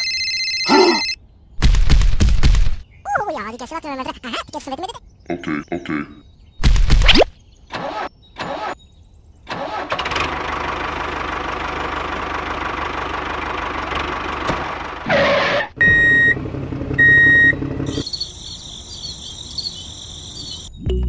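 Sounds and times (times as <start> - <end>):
tractor engine running: 9.5 - 18.3
cricket-like chirping: 18.0 - 21.0.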